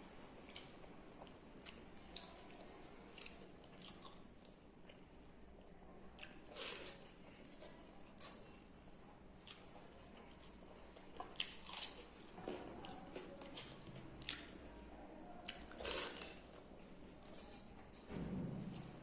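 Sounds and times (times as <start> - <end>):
chewing and mouth smacks: 0.4 - 5.0, 9.4 - 14.7, 15.4 - 17.6.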